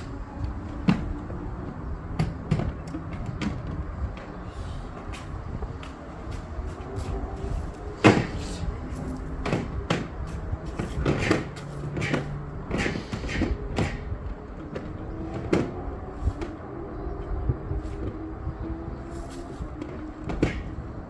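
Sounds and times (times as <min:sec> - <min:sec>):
irregular knocks and clunks: 0:00.6 - 0:04.4, 0:19.8 - 0:20.9.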